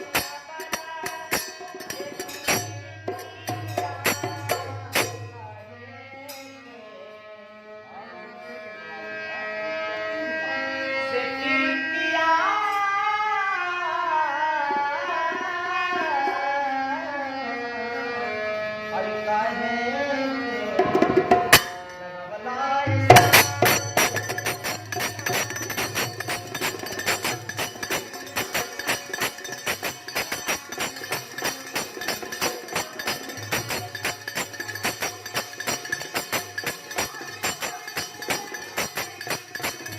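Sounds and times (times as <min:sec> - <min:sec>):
fast hand drum strokes: 0:00.0 - 0:05.4, 0:22.9 - 0:39.9
folk song with sliding melody: 0:00.0 - 0:39.9.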